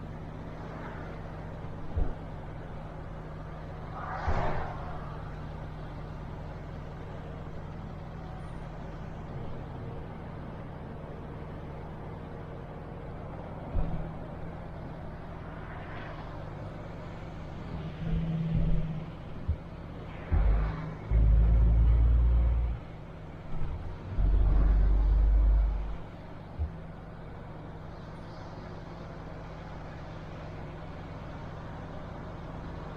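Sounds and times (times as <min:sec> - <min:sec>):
truck diesel engine running: 0:16.5 - 0:32.9
low thumps: 0:18.5 - 0:21.6.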